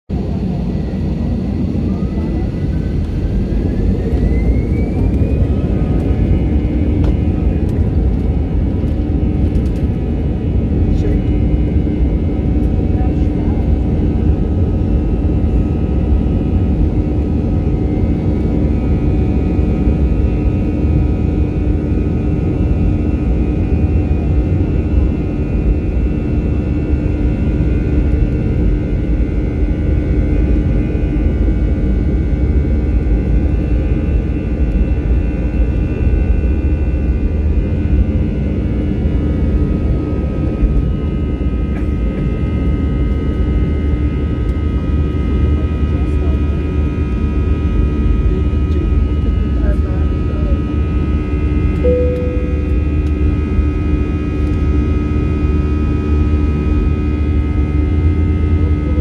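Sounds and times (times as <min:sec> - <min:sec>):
jet engines deep rumble: 0:00.1 - 0:59.0
high engine tones: 0:51.8 - 0:53.2.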